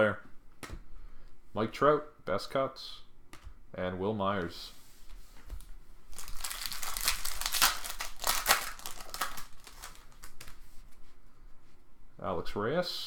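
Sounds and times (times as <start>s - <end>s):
wrapper crinkling: 6.1s - 10.7s.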